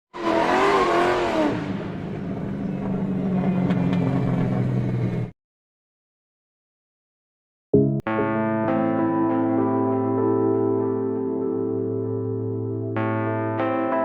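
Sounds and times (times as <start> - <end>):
car engine revving: 0.2 - 5.3.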